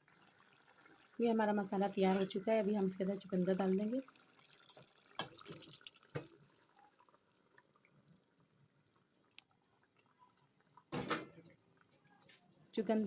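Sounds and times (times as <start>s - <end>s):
wet plops and drips: 4.4s - 8.1s.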